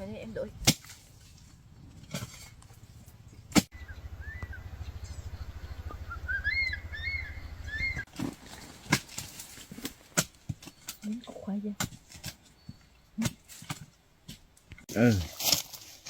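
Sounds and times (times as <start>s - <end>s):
low steady rumble: 0.0s - 9.6s
small bird chirping: 2.8s - 8.1s, 12.5s - 13.2s.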